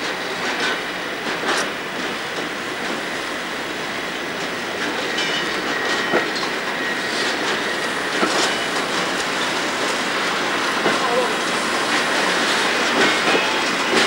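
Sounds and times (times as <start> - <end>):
clacks over rail joints: 0.0 - 3.1, 4.4 - 14.0
wheels rumbling on rail: 0.0 - 14.0
faint high wheel squeal: 5.0 - 9.6.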